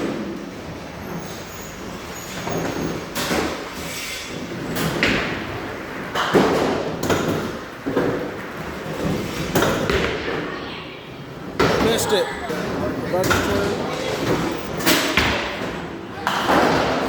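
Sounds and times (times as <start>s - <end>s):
bowling alley din: 0.0s - 17.0s
bowling balls and pins clattering: 0.0s - 17.0s.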